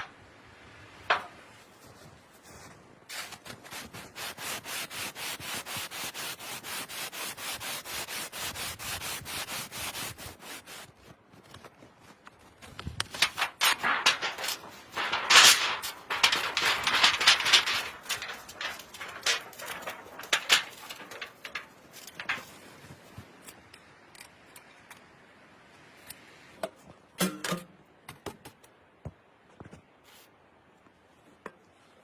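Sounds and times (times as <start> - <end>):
rustling: 1.7 - 23.6
objects being handled: 11.4 - 25.1.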